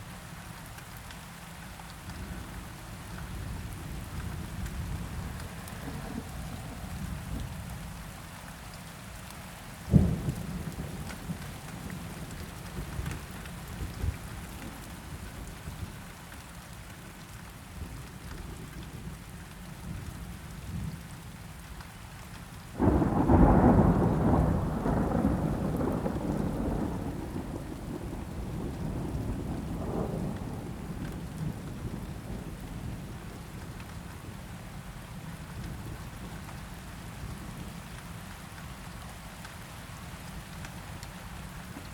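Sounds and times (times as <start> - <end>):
steady rain: 0.0 - 41.9
rolling thunder rumble: 22.8 - 33.8.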